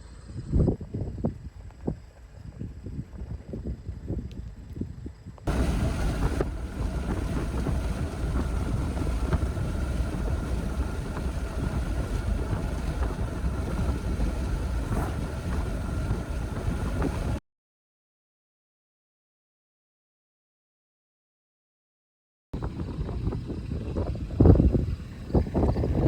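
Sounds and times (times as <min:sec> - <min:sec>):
strong wind buffeting microphone: 0:00.0 - 0:17.4, 0:22.6 - 0:26.0.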